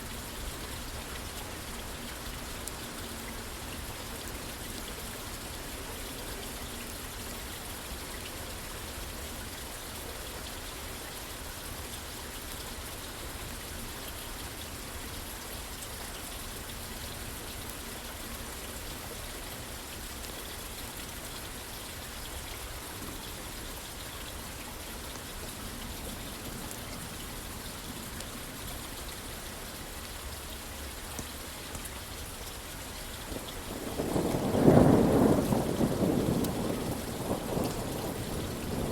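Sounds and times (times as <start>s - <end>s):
rain pattering on a roof: 0.0s - 38.9s
thunder rumbling: 33.3s - 38.9s.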